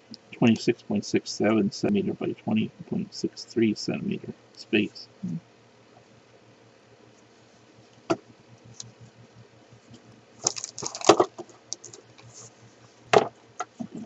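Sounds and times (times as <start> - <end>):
packaging crackling and rustling: 10.4 - 12.5.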